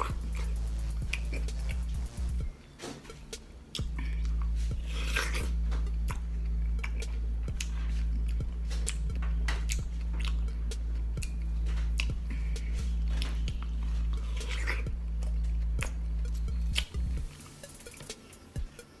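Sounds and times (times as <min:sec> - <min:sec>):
steady low hum: 0:00.0 - 0:19.0
wet squishy chewing: 0:03.7 - 0:10.6, 0:11.2 - 0:17.0.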